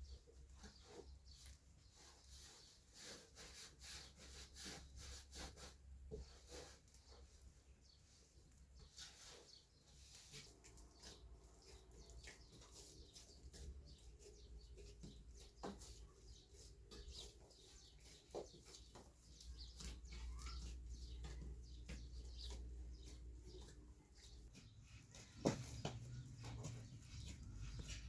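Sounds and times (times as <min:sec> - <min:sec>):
faint birds chirping: 0:00.0 - 0:28.0.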